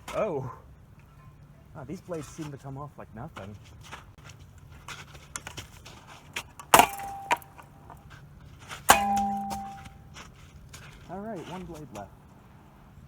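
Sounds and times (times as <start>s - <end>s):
tool striking fan with metallic ring: 6.8s - 7.7s, 8.9s - 10.1s.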